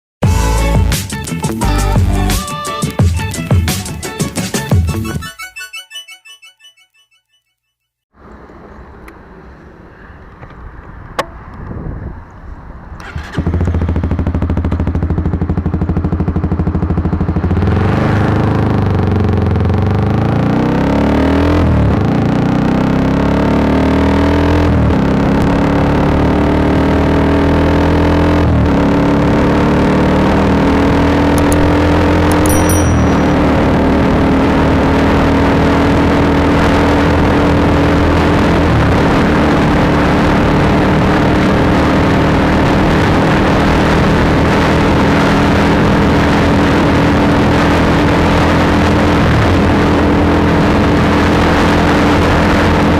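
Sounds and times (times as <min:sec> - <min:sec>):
motorcycle engine revving: 0:13.0 - 0:52.9.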